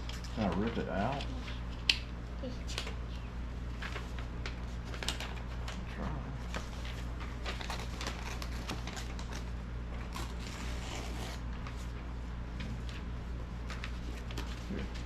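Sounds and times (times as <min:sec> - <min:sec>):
steady low hum: 0:00.0 - 0:15.0
paper rustling and tearing: 0:03.7 - 0:12.0, 0:12.7 - 0:15.0.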